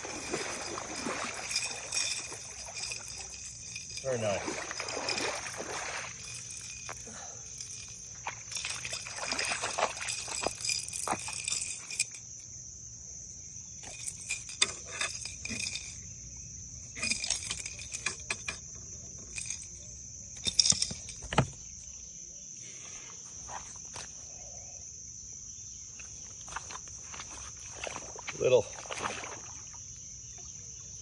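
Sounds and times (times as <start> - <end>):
clicks and clattering rattles: 0.0 - 12.2, 13.8 - 16.0, 17.0 - 21.8
insects trilling: 0.0 - 31.0.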